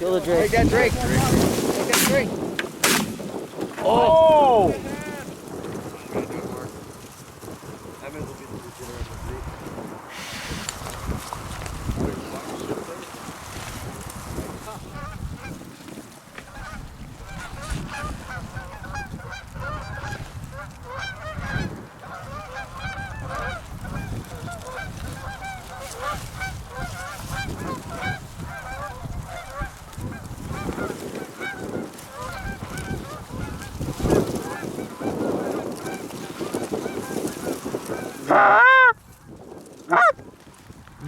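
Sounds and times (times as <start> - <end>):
geese honking: 14.4 - 15.6, 16.5 - 39.0, 39.9 - 40.2.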